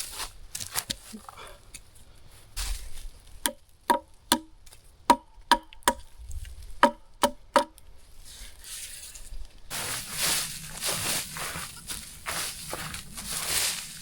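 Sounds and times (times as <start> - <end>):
soft rustling: 8.1 - 14.0.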